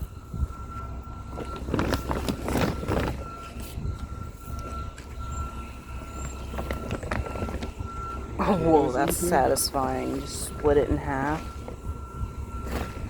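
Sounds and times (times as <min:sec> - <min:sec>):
steady low rumble: 0:00.0 - 0:13.0
potting soil rustling and crumbling: 0:01.4 - 0:03.8.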